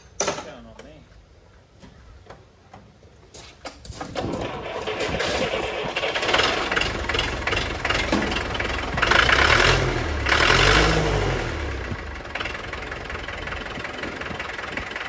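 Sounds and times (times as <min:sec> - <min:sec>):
tractor engine revving: 0:04.2 - 0:15.0.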